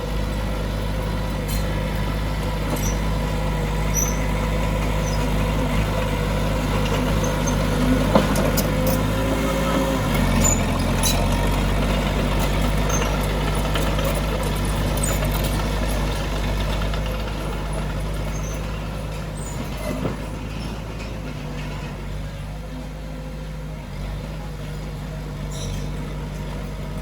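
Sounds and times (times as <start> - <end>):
heavy diesel engine running: 0.0 - 27.0
light metal clanks: 25.5 - 26.6.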